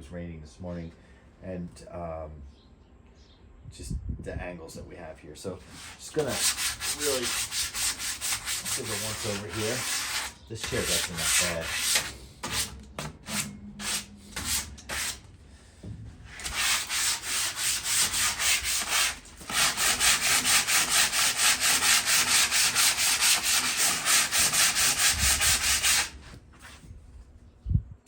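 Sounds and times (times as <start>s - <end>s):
sandpaper scrubbing metal chair: 5.6s - 15.2s, 16.3s - 26.8s.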